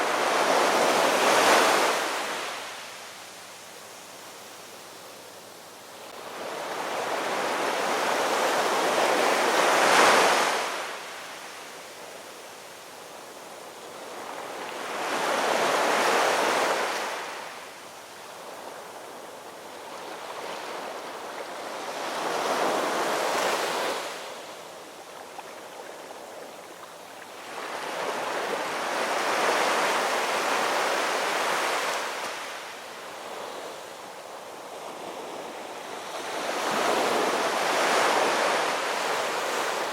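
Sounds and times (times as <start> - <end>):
ocean waves breaking on shore: 0.0 - 5.3, 5.9 - 39.9.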